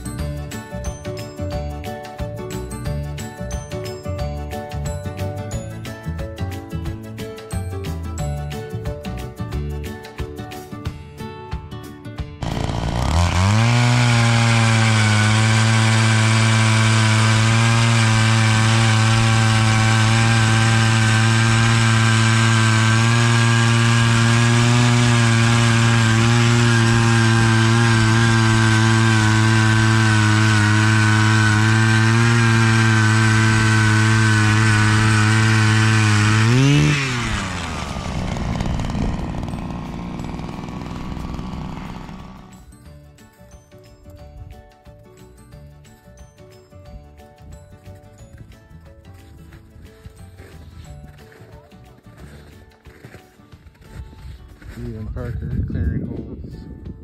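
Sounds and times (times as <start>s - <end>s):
ice auger motor drilling: 12.4s - 42.6s.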